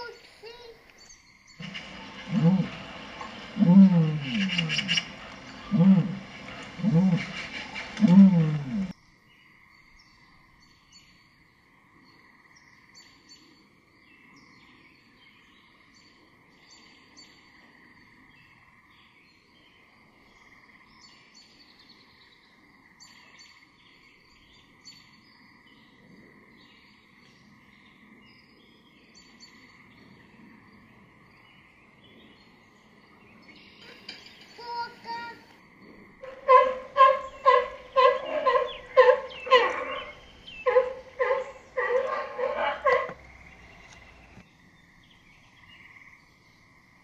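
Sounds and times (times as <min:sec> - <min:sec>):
small birds chirping: 0:00.0 - 0:11.3, 0:26.6 - 0:46.8.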